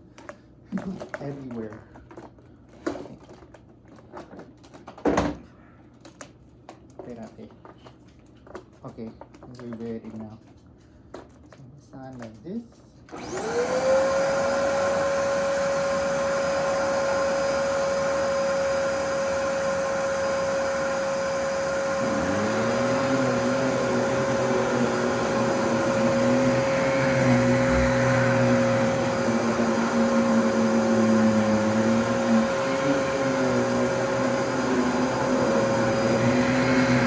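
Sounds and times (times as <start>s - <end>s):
vacuum cleaner motor whining: 13.1s - 37.0s.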